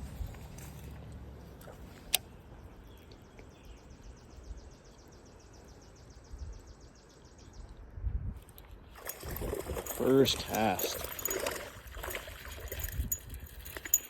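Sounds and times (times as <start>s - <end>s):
low wind-like rumble: 6.0s - 9.8s.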